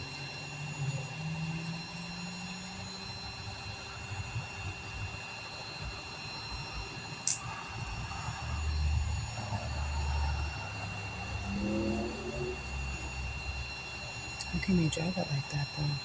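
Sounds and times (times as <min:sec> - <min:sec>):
sharp click: 0:07.2 - 0:07.4
truck engine rumbling: 0:08.6 - 0:13.6.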